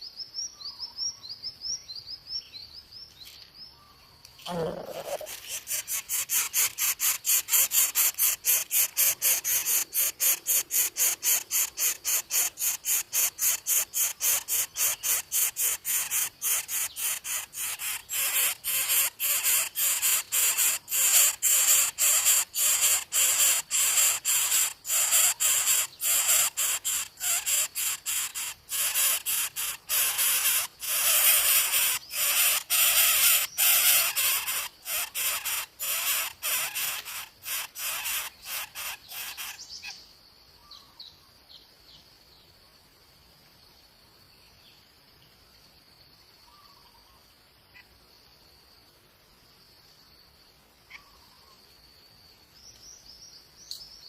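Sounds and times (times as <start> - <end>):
nestlings hissing begging calls: 4.5 - 39.9.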